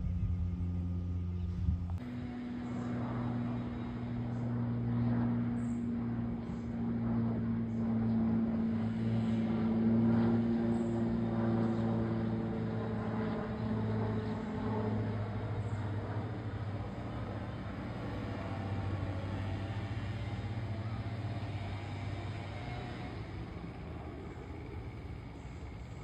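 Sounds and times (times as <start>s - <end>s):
aircraft engine drone: 0.0s - 26.0s.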